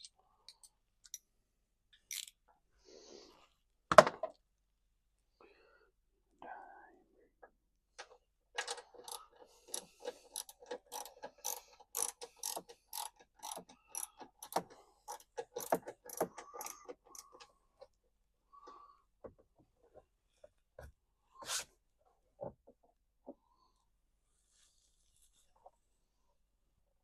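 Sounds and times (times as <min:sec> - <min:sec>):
ratchet wrench clicking: 0:02.1 - 0:02.3, 0:08.7 - 0:17.3.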